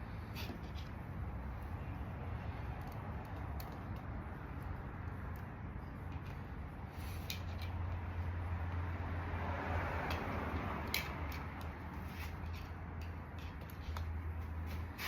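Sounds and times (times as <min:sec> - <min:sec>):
hand tools clicking and scraping: 0:10.0 - 0:15.0.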